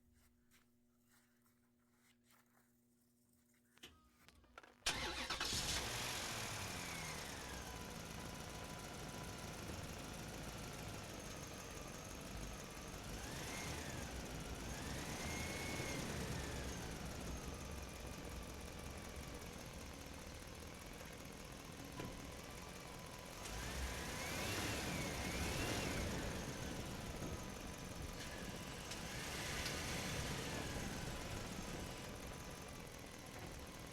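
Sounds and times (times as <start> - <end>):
toy tractor motors whining: 4.9 - 5.9.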